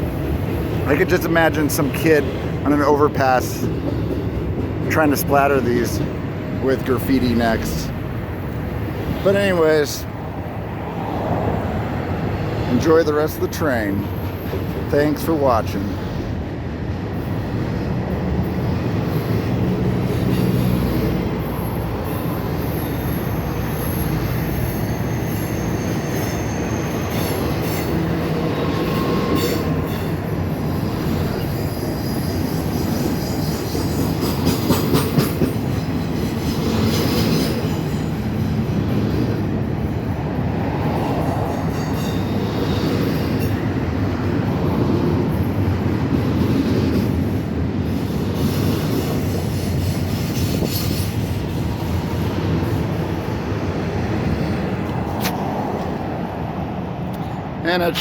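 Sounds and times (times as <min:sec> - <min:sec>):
high-pitched wheel squeals: 0:21.6 - 0:28.0
wheel-on-rail rumble and clatter: 0:26.2 - 0:57.6.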